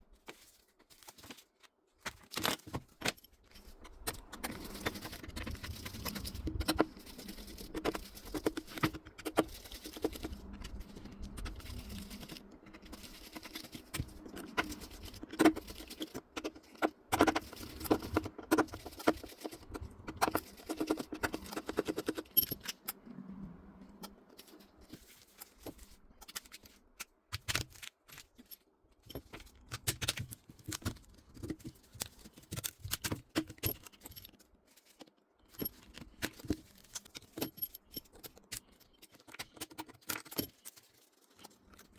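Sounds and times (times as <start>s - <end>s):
small metal tools clicking and scraping: 0.2s - 41.9s
steady low hum: 3.6s - 24.8s.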